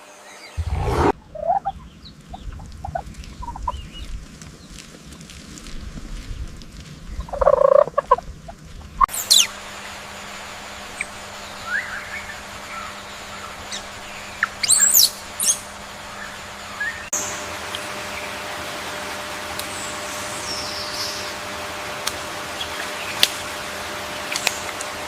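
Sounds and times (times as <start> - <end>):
small birds chirping and whistling: 11.6 - 15.6.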